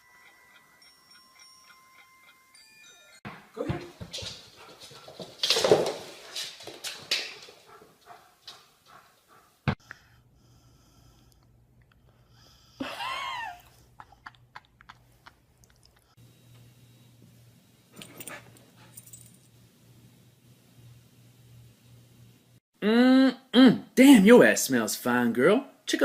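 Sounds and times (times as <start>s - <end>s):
pet rustling: 3.9s - 9.5s.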